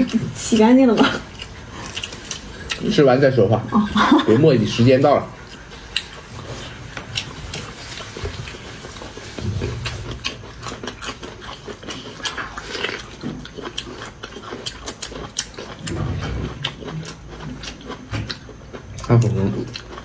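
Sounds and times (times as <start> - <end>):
wet chewing mouth clicks: 1.3 - 3.0.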